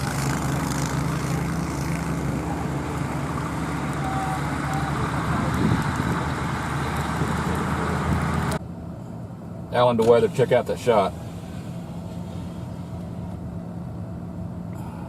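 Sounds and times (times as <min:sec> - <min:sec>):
road noise rushing: 0:00.0 - 0:15.0
vehicle engine hum: 0:00.0 - 0:15.0.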